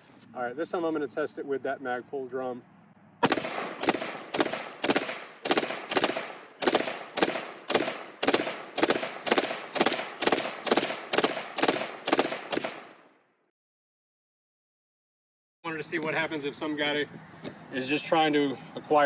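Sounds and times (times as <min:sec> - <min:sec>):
rifle shots in rapid string: 0:03.2 - 0:13.1.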